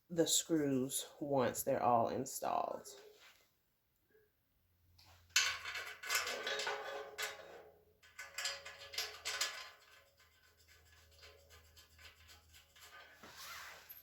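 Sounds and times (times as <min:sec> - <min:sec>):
metal shelving parts clinking: 0:05.4 - 0:10.0.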